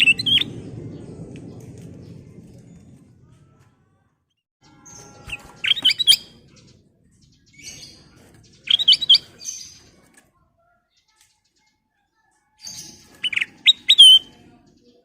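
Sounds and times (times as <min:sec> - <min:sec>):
bulbul whistled song: 0:05.0 - 0:06.4, 0:08.6 - 0:09.4, 0:12.8 - 0:14.4
high bird chattering: 0:08.6 - 0:09.7.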